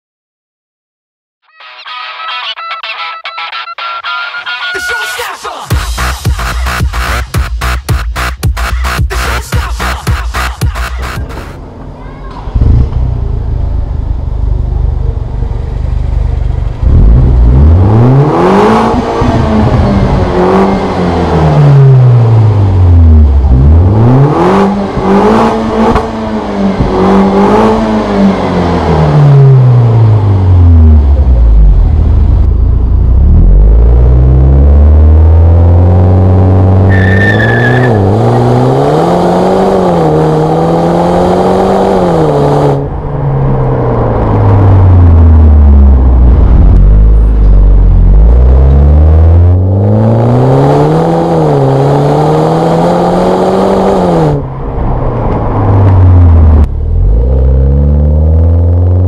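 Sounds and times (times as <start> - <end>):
car engine revving: 5.7 - 11.9, 12.5 - 59.0
high-pitched squeal: 36.8 - 38.8.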